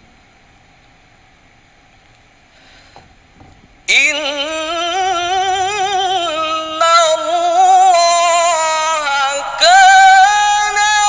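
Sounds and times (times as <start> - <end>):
man reciting melodically: 3.8 - 11.0.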